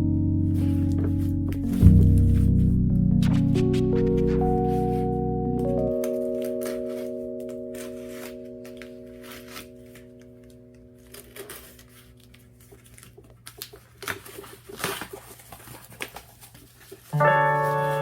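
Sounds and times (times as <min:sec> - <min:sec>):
held musical chord: 0:00.0 - 0:12.8, 0:17.2 - 0:18.0
packaging rustling and clicking: 0:05.7 - 0:18.0.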